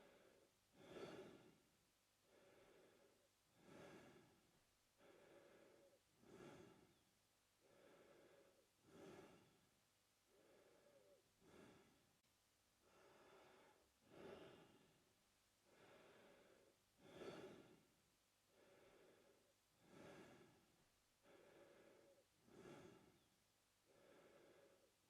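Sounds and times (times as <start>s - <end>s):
man breathing through mouth: 0.0s - 1.6s, 2.3s - 4.4s, 5.0s - 7.0s, 7.6s - 9.6s, 10.3s - 12.0s, 12.8s - 14.9s, 15.7s - 17.8s, 18.5s - 23.3s.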